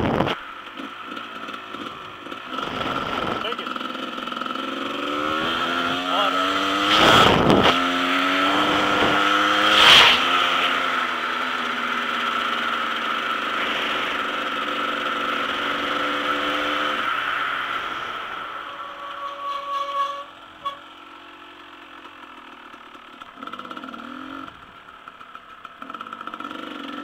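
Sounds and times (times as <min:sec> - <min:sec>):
wind noise on microphone: 0:00.0 - 0:00.4, 0:06.8 - 0:07.8
dirt bike engine running: 0:00.0 - 0:17.1, 0:17.7 - 0:27.0.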